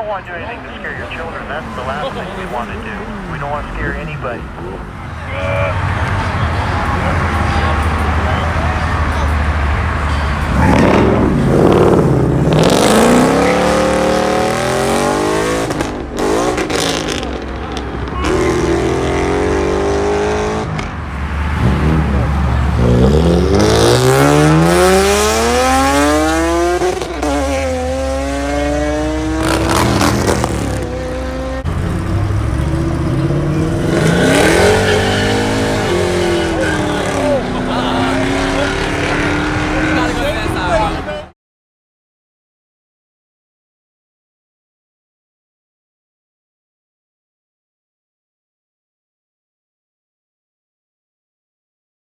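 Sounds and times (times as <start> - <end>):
car engines revving hard: 0.0 - 41.3.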